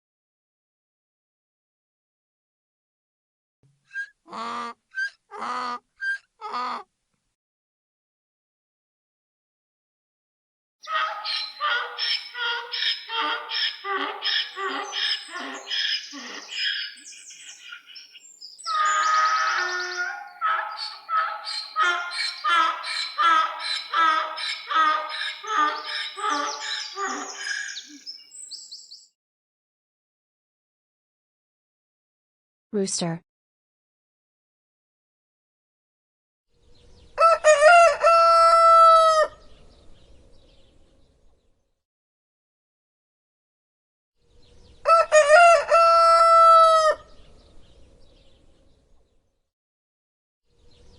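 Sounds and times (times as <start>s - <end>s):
animal squawking calls: 10.8s - 18.0s, 18.7s - 28.1s
rooster crowing: 18.8s - 27.5s, 37.2s - 39.4s, 44.8s - 47.1s.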